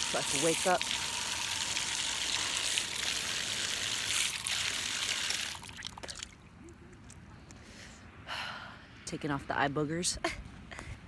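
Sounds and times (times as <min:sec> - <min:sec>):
small splashes and drips: 0:00.0 - 0:06.4
water pouring and trickling: 0:00.0 - 0:06.5.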